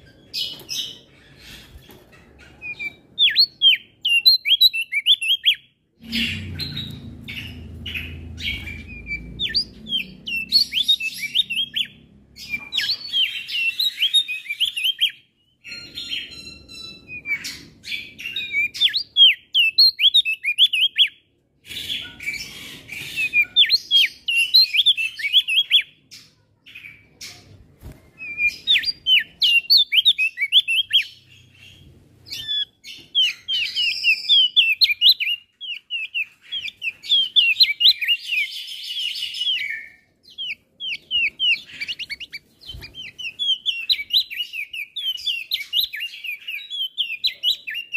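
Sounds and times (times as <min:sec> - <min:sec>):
bird singing high chirps: 0:00.0 - 0:47.9
low rumble: 0:06.0 - 0:10.5.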